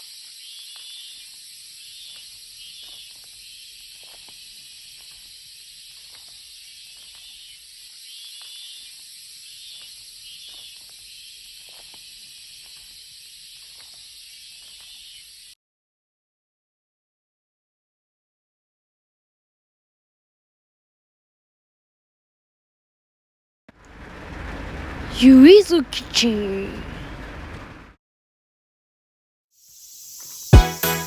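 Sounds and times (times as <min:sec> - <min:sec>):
small crackles: 0:00.0 - 0:15.3
high-pitched hiss: 0:29.6 - 0:31.0.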